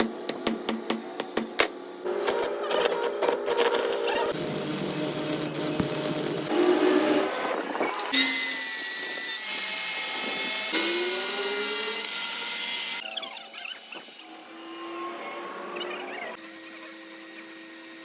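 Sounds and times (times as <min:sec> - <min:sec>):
power tools drilling and grinding metal: 0:04.2 - 0:15.8.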